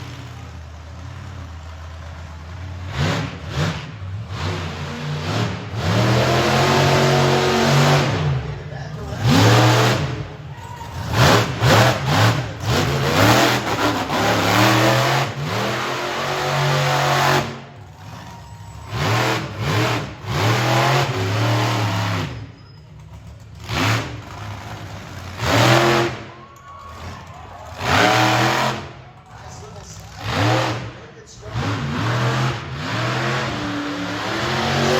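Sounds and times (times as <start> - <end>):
truck engine revving: 0.0 - 34.9.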